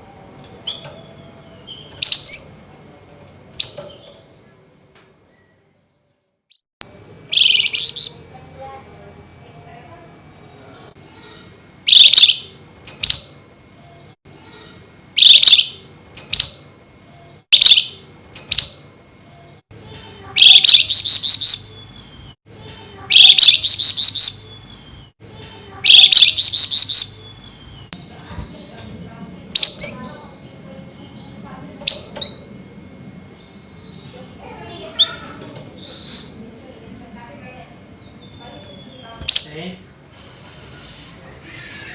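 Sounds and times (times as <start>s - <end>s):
songbird harsh calls and rattles: 0.4s - 2.8s, 7.3s - 8.5s, 10.6s - 32.6s, 33.3s - 36.2s, 37.7s - 39.7s.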